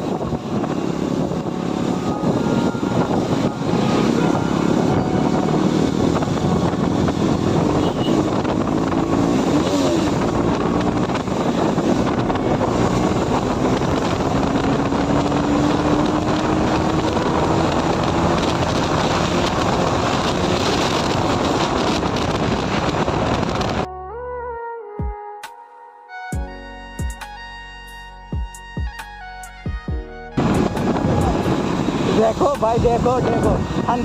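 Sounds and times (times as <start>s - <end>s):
motorcycle engine: 0.0s - 23.9s
wind noise on microphone: 0.0s - 23.9s, 29.7s - 34.0s.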